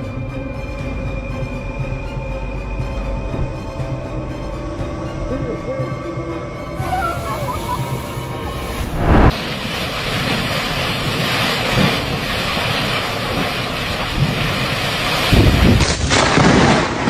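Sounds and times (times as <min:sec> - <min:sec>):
rushing roar of air: 0:06.8 - 0:12.3
gusts buffeting microphone: 0:06.8 - 0:16.7.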